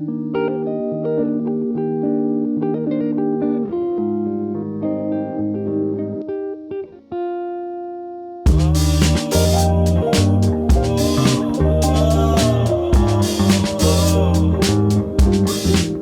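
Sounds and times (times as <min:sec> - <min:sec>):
guitar music: 0:00.0 - 0:16.0
bass line: 0:08.5 - 0:16.0.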